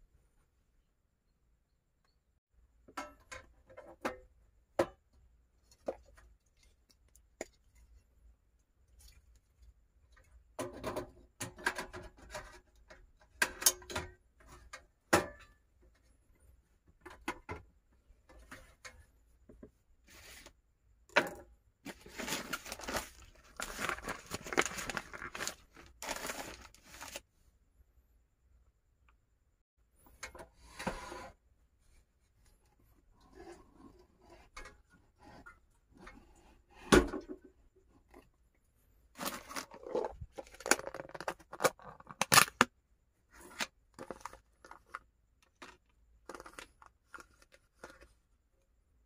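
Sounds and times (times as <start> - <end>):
packaging rustling and tearing: 21.9 - 27.2.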